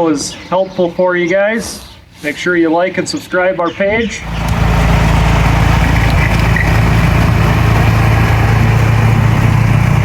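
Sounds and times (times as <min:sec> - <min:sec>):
snowblower engine running: 0:04.2 - 0:10.0.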